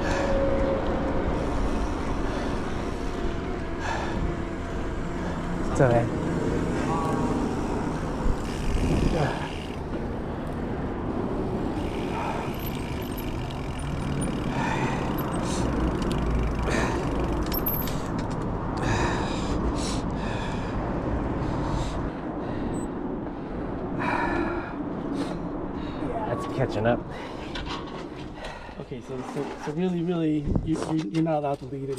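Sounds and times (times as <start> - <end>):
rider breathing and gasping: 0.0 - 5.6, 6.2 - 26.3, 27.0 - 30.4
bike rolling on dirt trail: 0.0 - 18.8
wind on microphone: 7.2 - 9.5, 30.4 - 30.9.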